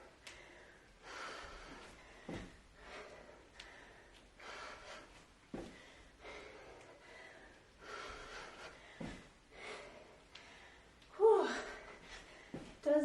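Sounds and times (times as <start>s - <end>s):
woman breathing hard: 0.0s - 12.8s
short dull thumps: 2.2s - 2.6s.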